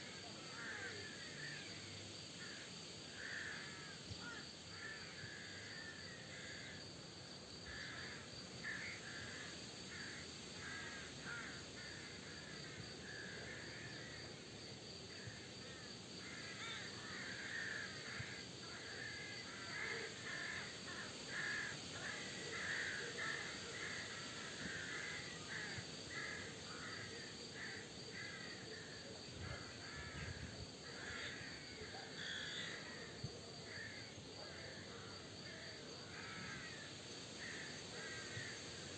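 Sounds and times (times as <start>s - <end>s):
crows cawing: 3.2s - 6.7s, 7.7s - 12.1s, 16.2s - 28.6s, 29.6s - 33.0s, 36.0s - 38.6s.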